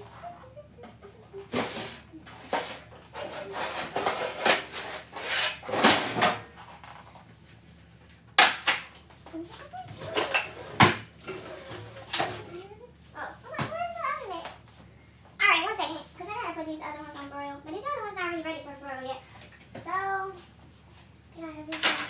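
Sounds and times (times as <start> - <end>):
cookware scraping: 1.4 - 6.5, 9.7 - 12.5.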